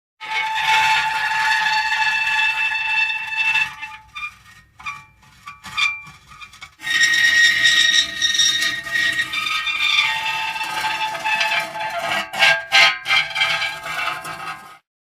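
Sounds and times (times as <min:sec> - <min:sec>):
metal creaking and squealing: 0:00.2 - 0:14.9.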